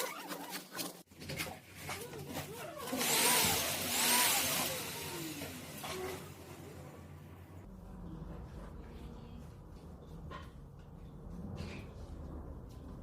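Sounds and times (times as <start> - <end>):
vacuum cleaner running: 2.4 - 7.1.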